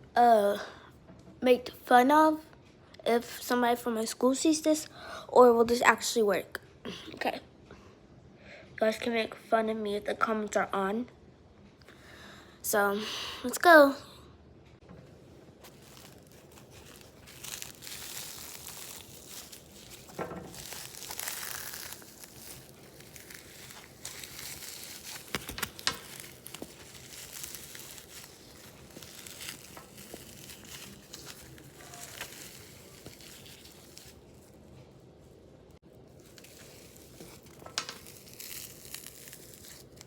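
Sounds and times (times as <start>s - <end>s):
frozen foam toy crinkling: 15.6s - 35.2s, 35.9s - 40.0s.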